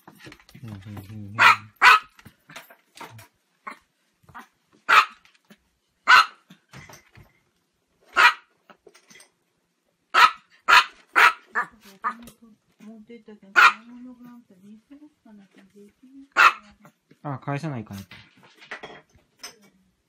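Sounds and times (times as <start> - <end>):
small dog yapping: 1.4 - 2.1, 3.6 - 5.2, 6.1 - 6.4, 8.1 - 8.5, 10.2 - 12.2, 13.6 - 13.8, 16.4 - 16.6.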